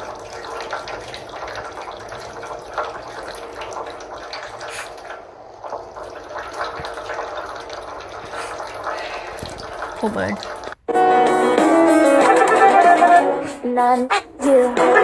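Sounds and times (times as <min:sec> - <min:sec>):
running water splashing: 0:00.0 - 0:10.8
small splashes and drips: 0:00.0 - 0:10.8.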